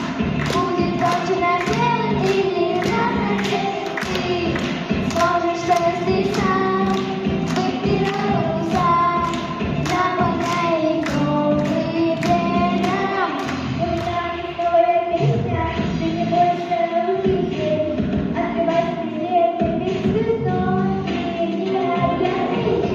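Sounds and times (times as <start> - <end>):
children singing: 0.0 - 15.4
song with steady beat: 0.0 - 22.9.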